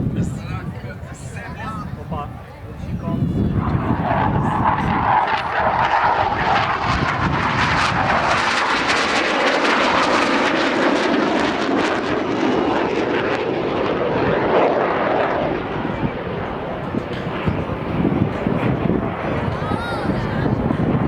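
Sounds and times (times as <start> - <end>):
loud jet roar: 3.2 - 21.0.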